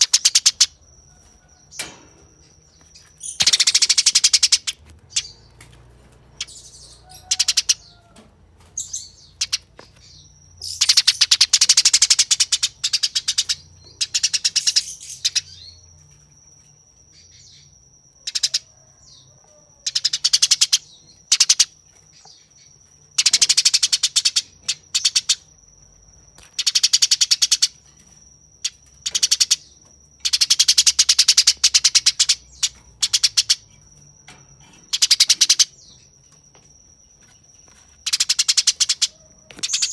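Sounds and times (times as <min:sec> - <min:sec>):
sparrow chattering: 0:00.0 - 0:00.8, 0:01.7 - 0:05.5, 0:06.3 - 0:08.0, 0:08.8 - 0:15.8, 0:18.2 - 0:18.7, 0:19.9 - 0:22.5, 0:23.2 - 0:25.4, 0:26.5 - 0:27.8, 0:28.6 - 0:33.8, 0:34.6 - 0:36.1, 0:37.7 - 0:39.9.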